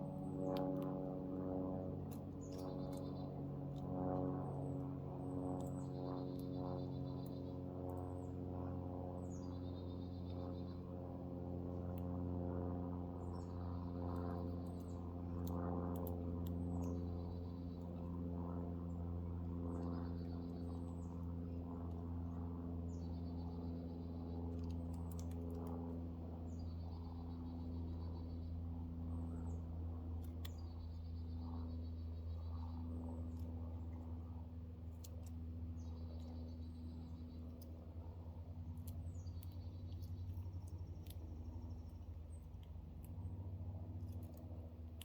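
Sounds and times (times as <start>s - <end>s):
steady low hum: 0.0s - 45.0s
songbird singing: 9.2s - 10.9s, 13.2s - 34.2s, 34.8s - 43.4s.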